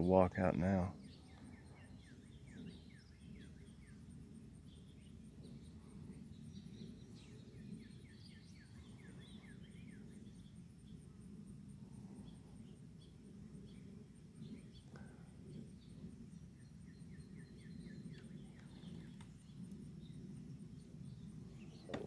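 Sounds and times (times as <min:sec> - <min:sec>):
insect high pulsing: 0:00.0 - 0:22.0
faint bird chirps: 0:00.4 - 0:22.0.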